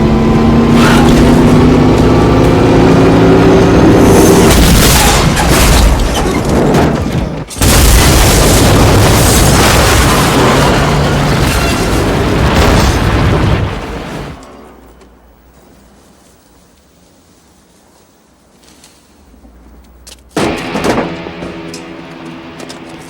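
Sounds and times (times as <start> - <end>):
heavy vehicle crash: 3.8 - 14.8, 20.3 - 23.0
crunching and scraping metal: 4.2 - 15.2, 18.5 - 23.0.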